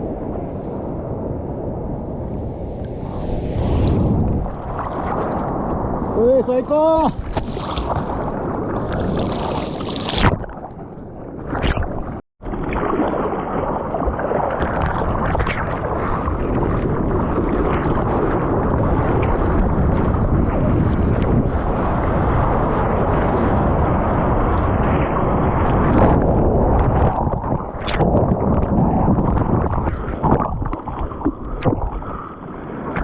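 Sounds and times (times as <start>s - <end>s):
wind on microphone: 0.0s - 33.0s
water rushing: 25.2s - 33.0s.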